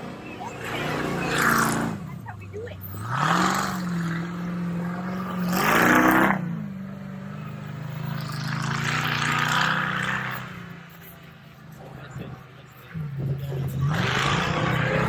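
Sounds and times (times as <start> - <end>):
truck engine revving under load: 0.0 - 15.0.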